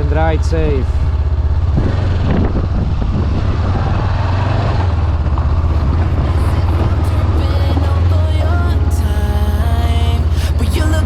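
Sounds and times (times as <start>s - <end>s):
motorcycle engine running: 0.0s - 7.4s
wind noise on microphone: 0.7s - 8.0s.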